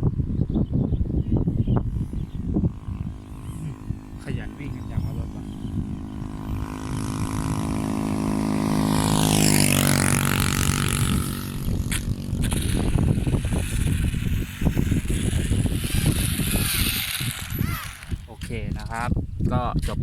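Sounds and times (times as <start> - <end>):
gusty low rumbling: 0.0 - 20.0
vehicle driving past: 2.6 - 12.4.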